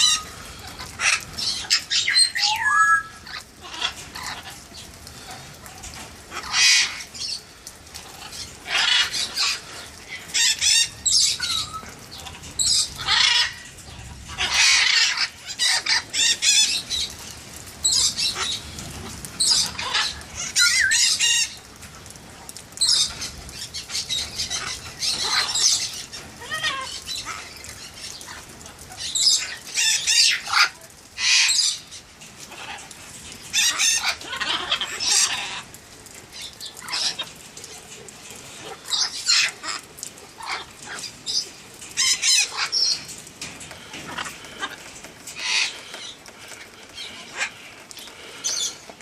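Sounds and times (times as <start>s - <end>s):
parrots squawking: 0.0s - 4.7s, 6.3s - 7.4s, 8.0s - 17.2s, 17.8s - 18.8s, 19.4s - 21.6s, 22.8s - 32.9s, 33.5s - 35.8s, 36.4s - 37.4s, 38.6s - 43.1s, 43.8s - 48.8s
rain hiss: 0.0s - 49.0s.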